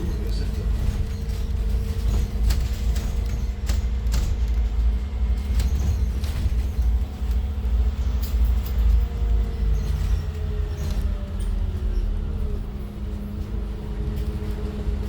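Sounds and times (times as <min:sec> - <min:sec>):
body rattles and clicks: 0:00.0 - 0:11.6
bus engine and road rumble: 0:00.0 - 0:15.0
constant hum: 0:00.0 - 0:15.0.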